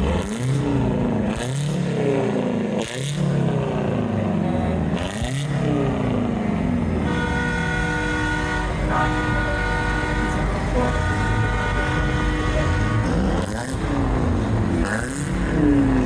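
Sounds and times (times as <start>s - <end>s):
truck engine rumble: 0.0s - 16.0s
truck air horn chord: 7.0s - 15.5s.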